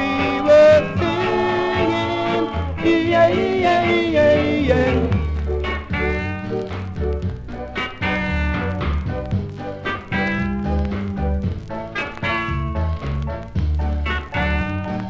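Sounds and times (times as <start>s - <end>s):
vocal group singing wordless melody: 0.0s - 5.4s
reggae band playing: 0.0s - 15.0s.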